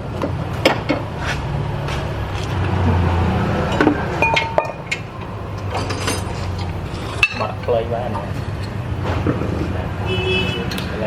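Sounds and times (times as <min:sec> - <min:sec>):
metal tools clinking: 0:03.7 - 0:07.8.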